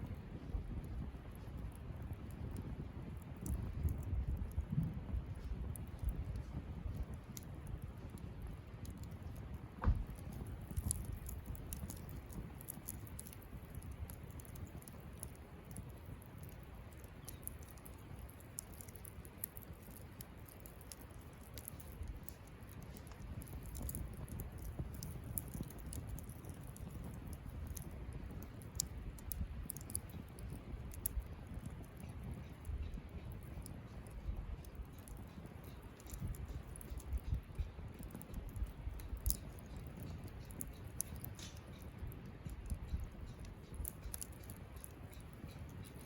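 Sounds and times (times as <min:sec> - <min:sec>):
campfire crackling: 0:00.0 - 0:46.0
low fire rumble: 0:00.0 - 0:46.0
loud fire pop: 0:09.8 - 0:10.9.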